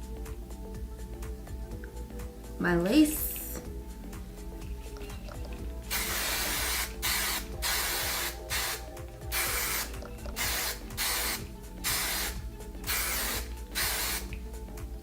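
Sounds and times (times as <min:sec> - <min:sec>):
aerosol can spraying in bursts: 0:05.9 - 0:14.4.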